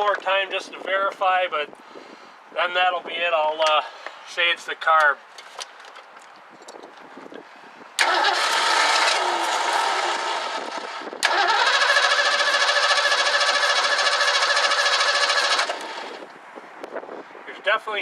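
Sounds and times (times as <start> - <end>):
starter cranking engine: 8.0 - 16.3.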